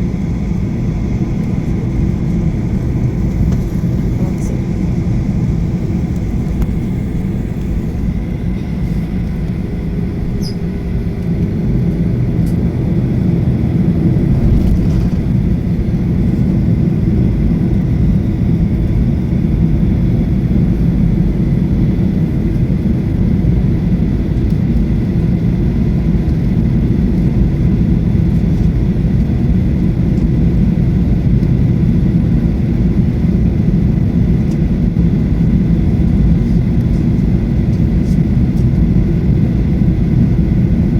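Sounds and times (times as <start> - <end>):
faint steady whine: 0.0 - 21.5
airplane cabin engine rumble: 0.0 - 40.9.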